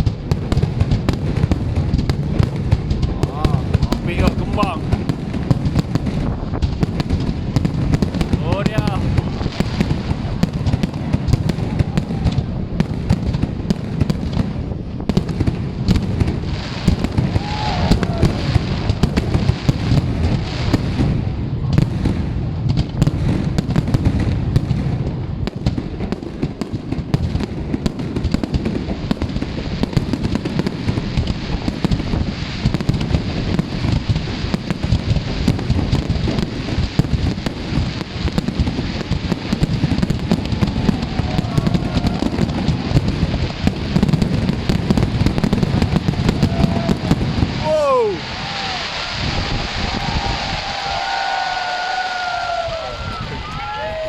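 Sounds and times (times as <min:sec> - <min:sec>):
low rumble of booms: 0:00.0 - 0:51.1
fireworks crackling and banging: 0:00.0 - 0:54.0.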